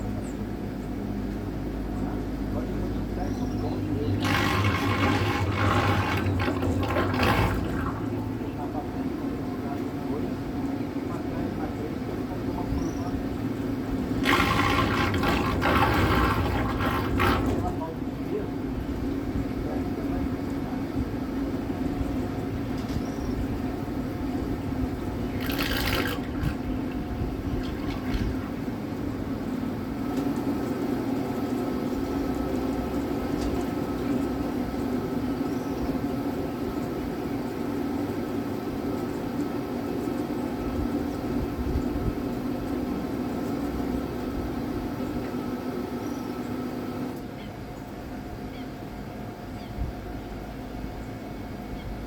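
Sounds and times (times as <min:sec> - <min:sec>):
steady low hum: 0:00.0 - 0:52.0
water rushing along boat hull: 0:03.6 - 0:22.6, 0:23.6 - 0:38.8.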